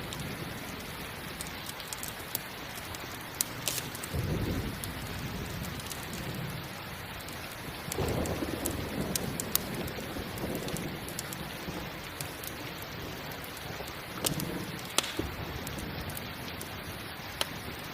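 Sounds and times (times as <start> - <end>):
campfire crackling: 0.0 - 17.9
steady rain: 0.0 - 17.9
low rolls of thunder: 4.0 - 6.7, 7.7 - 16.3.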